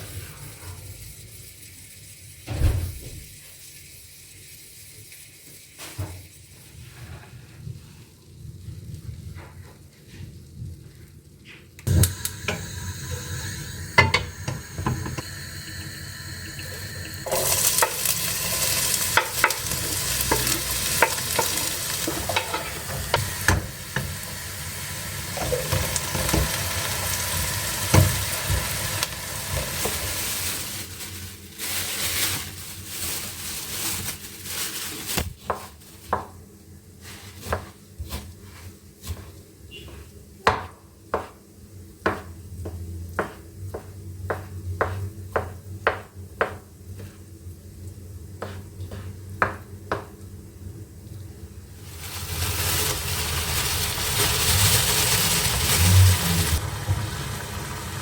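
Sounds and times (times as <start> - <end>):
food sizzling in a frying pan: 11.9 - 35.2, 51.7 - 58.0.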